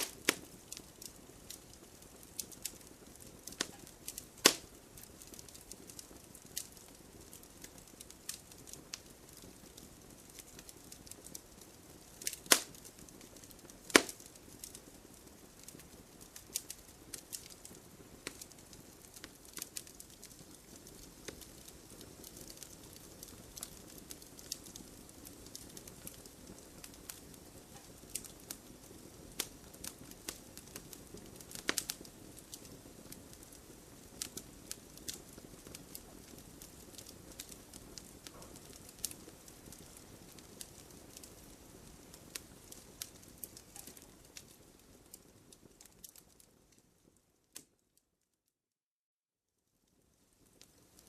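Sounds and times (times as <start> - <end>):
wood fire crackling: 0.0 - 47.9, 49.8 - 51.0.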